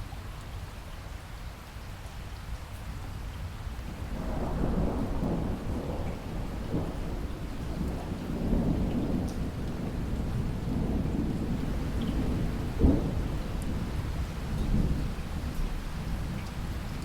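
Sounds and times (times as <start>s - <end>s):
steady rain: 0.0s - 17.0s
low rolling thunder: 3.9s - 17.0s.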